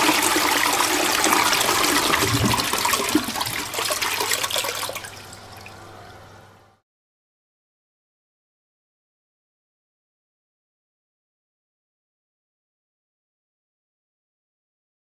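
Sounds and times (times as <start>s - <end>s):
toilet flushing: 0.0s - 6.6s.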